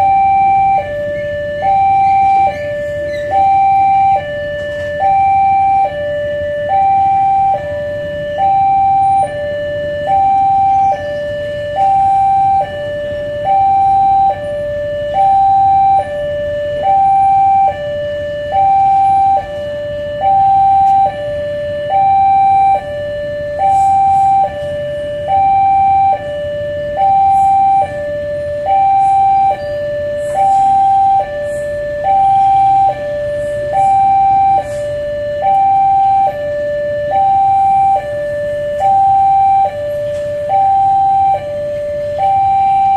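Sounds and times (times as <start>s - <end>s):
low vehicle rumble: 0.0s - 42.9s
two-tone hi-lo siren: 0.0s - 42.9s.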